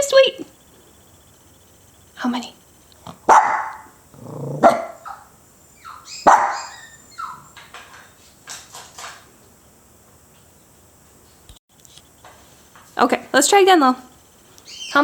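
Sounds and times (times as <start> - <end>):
small dog barking sharply: 3.3 - 3.9, 4.6 - 5.2, 6.2 - 7.4
small dog yipping: 4.6 - 7.5.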